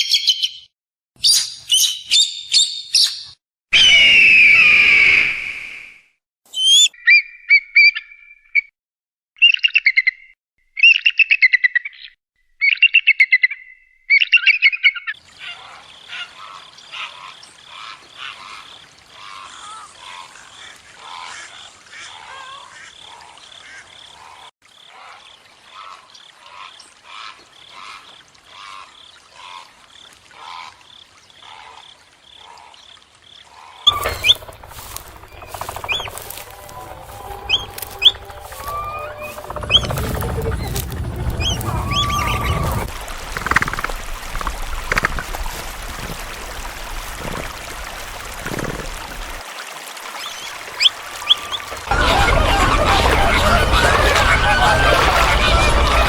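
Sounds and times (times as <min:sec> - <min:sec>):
loud pitched bird calls: 0:00.0 - 0:05.8, 0:33.9 - 0:44.5
many birds chirping: 0:33.7 - 0:45.0, 0:50.8 - 0:56.0.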